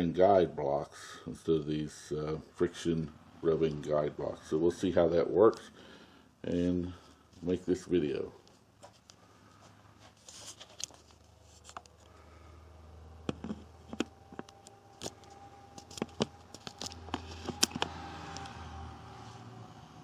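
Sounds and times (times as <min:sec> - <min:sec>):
low steady hum: 0:00.0 - 0:20.0
small objects clicking and knocking: 0:13.2 - 0:18.5.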